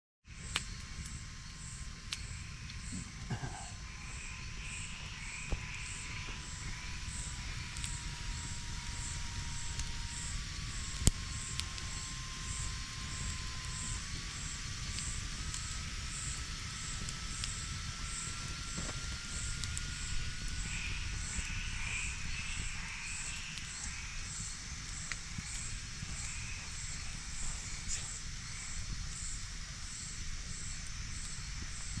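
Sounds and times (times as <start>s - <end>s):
campfire crackling and popping: 0.3s - 32.0s
night insects chirping: 0.3s - 32.0s.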